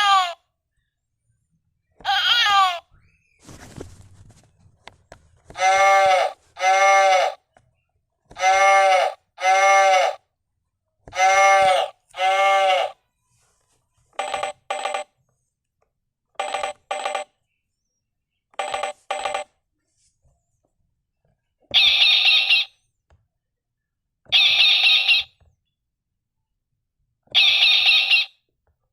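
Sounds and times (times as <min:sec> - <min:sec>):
sheep bleating: 0:11.1 - 0:13.0
telephone ringing: 0:14.2 - 0:15.2, 0:16.4 - 0:17.3, 0:18.6 - 0:19.5, 0:27.3 - 0:28.4.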